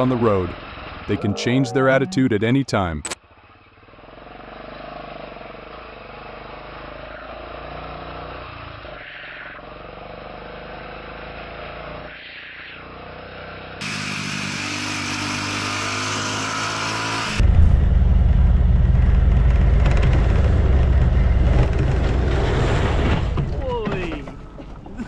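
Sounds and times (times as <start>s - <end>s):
road and wind noise: 0.0s - 25.0s
vehicle engine: 0.0s - 25.0s
motorcycle engine running: 12.7s - 22.4s.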